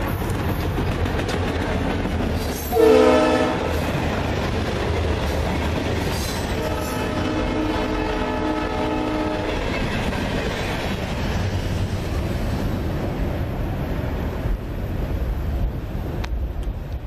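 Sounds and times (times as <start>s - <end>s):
train wheels rumbling on rail: 0.0s - 17.0s
train horn chord: 2.7s - 3.8s, 6.6s - 9.6s.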